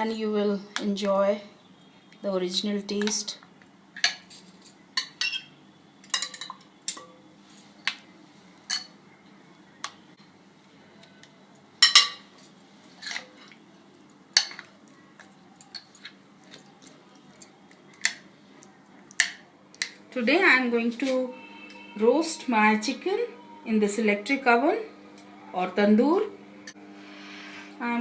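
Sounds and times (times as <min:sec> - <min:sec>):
utensils and dishes clinking: 0:04.0 - 0:07.7, 0:11.5 - 0:13.6, 0:14.3 - 0:18.2.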